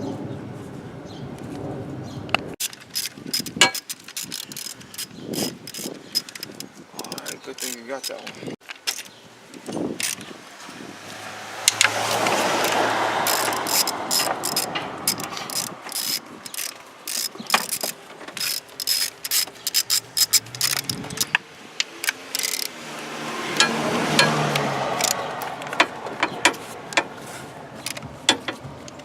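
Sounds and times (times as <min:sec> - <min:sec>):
metal clinks: 0:02.6 - 0:09.1
ratchet wrench clicking: 0:02.6 - 0:10.3, 0:11.7 - 0:22.8, 0:23.6 - 0:27.1, 0:27.8 - 0:29.0
rustling scrape: 0:26.4 - 0:28.8.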